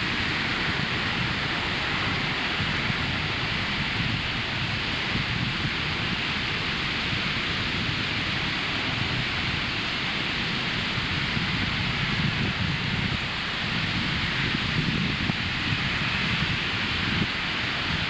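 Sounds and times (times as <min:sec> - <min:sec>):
ocean surf on sandy beach: 0:00.0 - 0:18.0.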